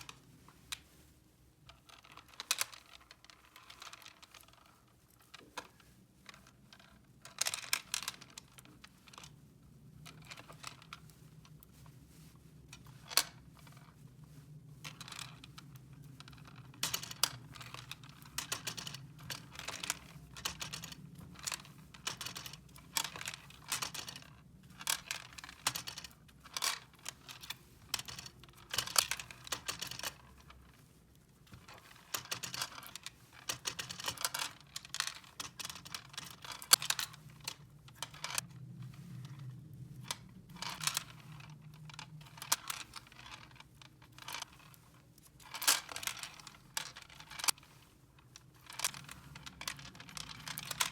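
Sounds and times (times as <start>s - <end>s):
plastic toy parts clicking: 16.8s - 30.2s, 31.6s - 37.2s, 48.6s - 50.9s.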